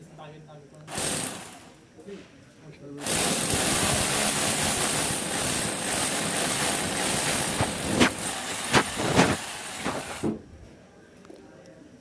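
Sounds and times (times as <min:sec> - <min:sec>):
electric drill boring into wall: 0:00.9 - 0:01.7, 0:03.0 - 0:10.4.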